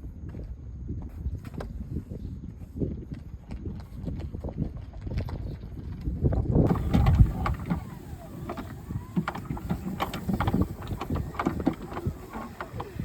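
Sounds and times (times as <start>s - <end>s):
knocks and clicks: 6.7s - 13.0s
water against hull: 6.7s - 13.0s.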